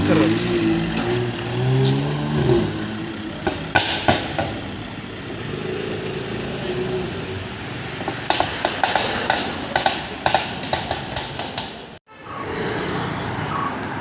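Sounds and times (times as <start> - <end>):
car engine passing: 0.0 - 11.4
street traffic: 0.0 - 14.0
sharp knocks: 3.4 - 4.6, 8.0 - 12.0.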